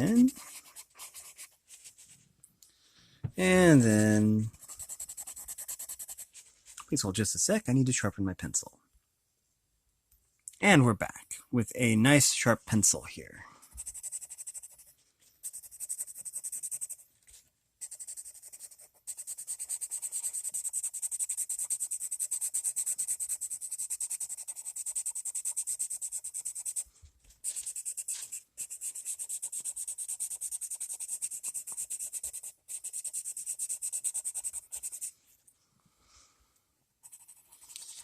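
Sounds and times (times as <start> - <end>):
pencil scratching on paper: 0.0 - 2.2, 3.7 - 6.8, 13.7 - 17.1, 17.8 - 35.2, 37.0 - 38.0.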